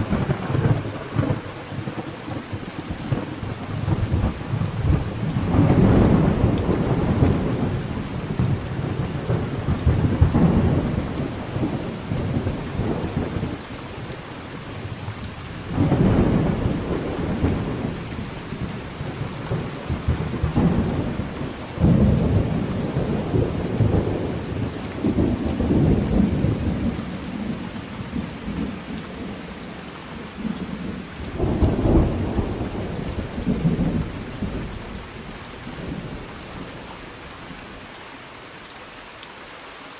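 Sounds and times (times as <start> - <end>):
rolling thunder: 0.0 - 13.6, 15.6 - 29.5, 30.4 - 36.8
steady rain: 0.0 - 39.9.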